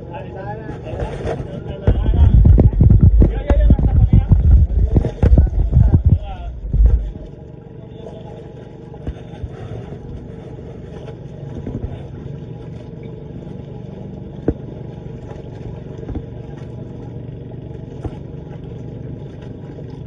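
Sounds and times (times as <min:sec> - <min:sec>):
motorboat engine running: 0:00.0 - 0:20.0
sharp knocks: 0:01.8 - 0:07.2, 0:16.0 - 0:16.4.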